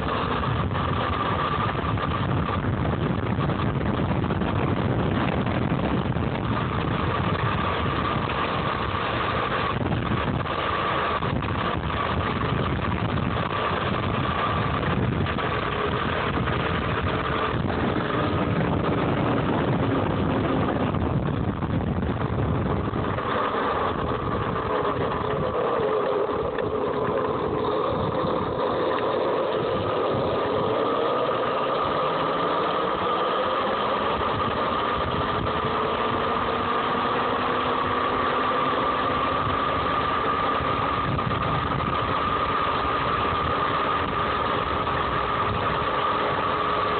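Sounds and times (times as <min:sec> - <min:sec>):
electric motor whining: 0:00.0 - 0:46.9
wind: 0:00.0 - 0:46.9.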